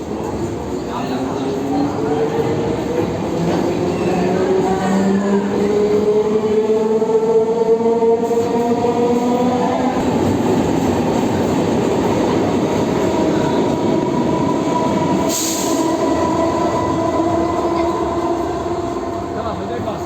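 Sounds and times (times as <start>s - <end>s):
train coach running noise: 7.8s - 20.0s.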